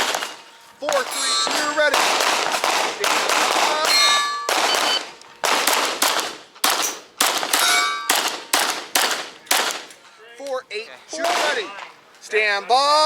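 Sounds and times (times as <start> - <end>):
pistol shots: 0.0 - 9.9, 11.2 - 11.7
metallic ring: 0.3 - 1.8, 3.9 - 5.0, 7.6 - 8.2.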